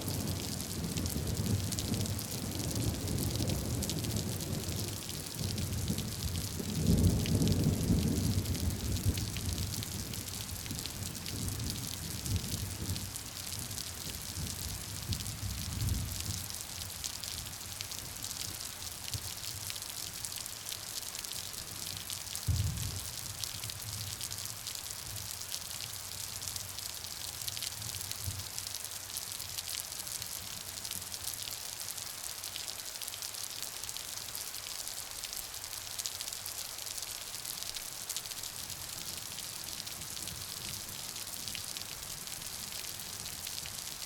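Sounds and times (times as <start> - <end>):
steady rain falling: 0.0 - 44.0
low rumble of thunder: 0.1 - 16.6, 22.5 - 23.1.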